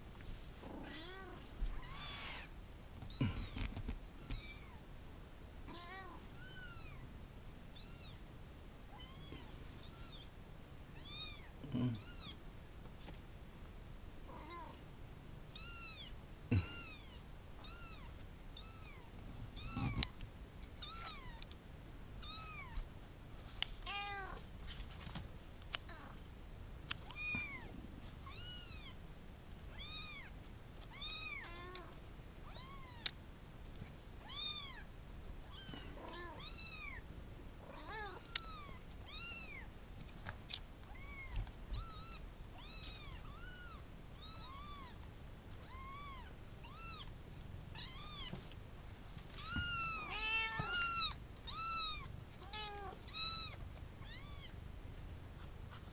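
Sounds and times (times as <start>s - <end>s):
cats meowing: 0.6s - 4.8s, 5.7s - 7.1s, 11.0s - 12.4s, 15.5s - 20.2s, 20.8s - 21.5s, 22.2s - 22.8s, 23.8s - 24.4s, 27.0s - 29.0s, 29.7s - 33.2s, 34.2s - 37.0s, 37.6s - 39.7s, 40.8s - 45.0s, 45.6s - 47.1s, 47.7s - 48.6s, 49.3s - 54.6s.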